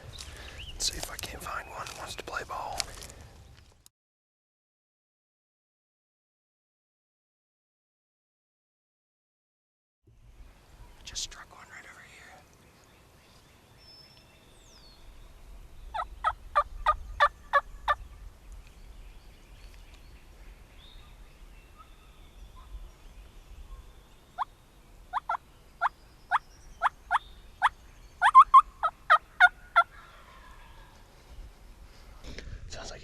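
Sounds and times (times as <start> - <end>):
turkey call yelping: 25.1 - 25.9, 26.8 - 30.8.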